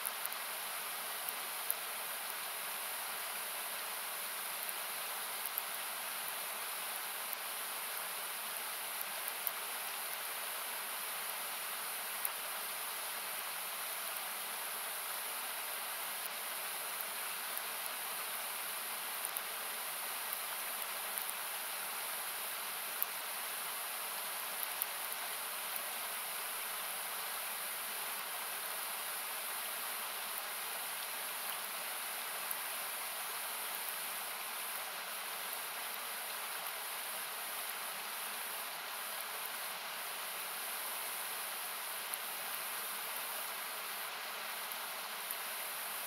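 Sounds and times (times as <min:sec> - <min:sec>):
rushing river hiss: 0:00.0 - 0:46.0
campfire crackles and pops: 0:04.4 - 0:06.4, 0:07.2 - 0:10.3, 0:16.1 - 0:21.5, 0:24.2 - 0:25.8.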